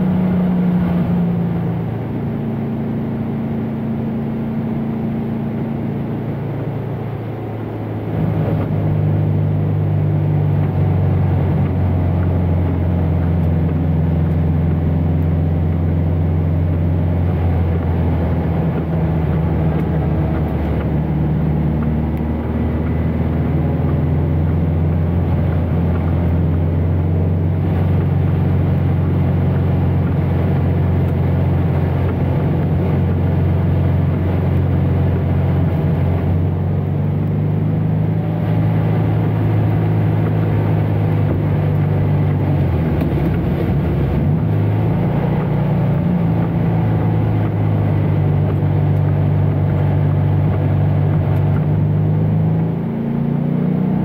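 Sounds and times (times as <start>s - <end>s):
racing car engine: 0.0s - 54.0s.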